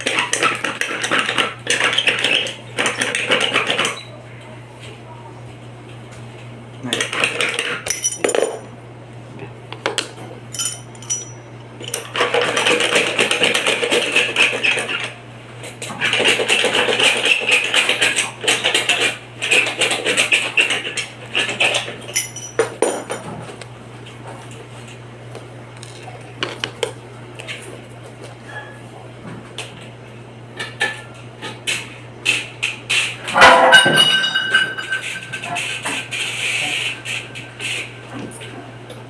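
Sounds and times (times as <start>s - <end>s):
metal clinks and knocks: 7.8s - 8.7s, 10.5s - 12.1s, 22.1s - 23.3s
steady low hum: 7.8s - 12.1s.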